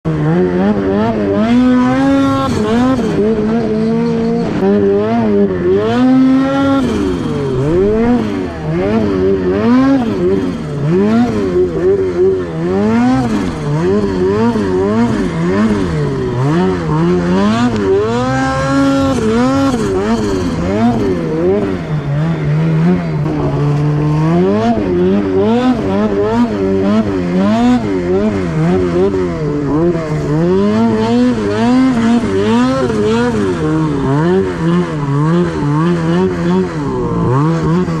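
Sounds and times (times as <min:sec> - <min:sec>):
turbocharged engine revving: 0:00.1 - 0:38.0.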